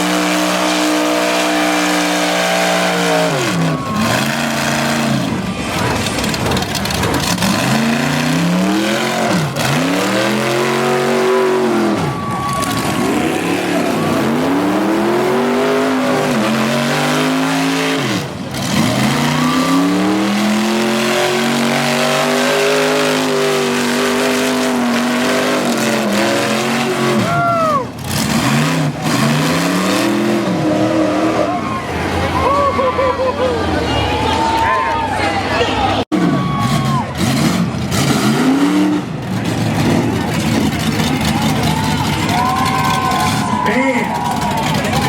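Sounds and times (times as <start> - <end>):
truck engine revving hard: 0.0 - 45.0.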